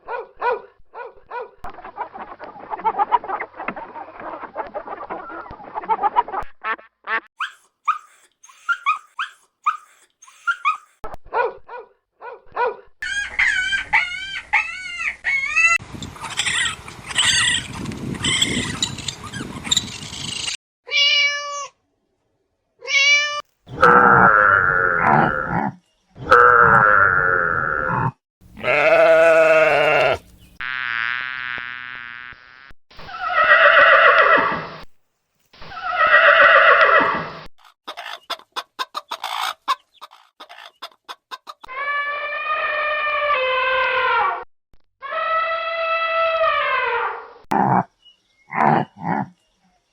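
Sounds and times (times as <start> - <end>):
goat bleating: 28.6 - 30.3.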